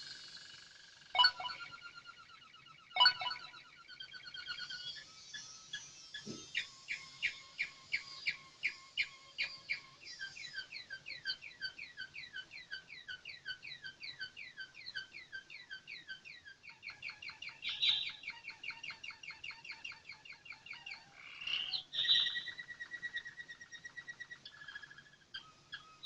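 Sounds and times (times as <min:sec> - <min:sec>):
canary singing trills: 0:00.0 - 0:26.0.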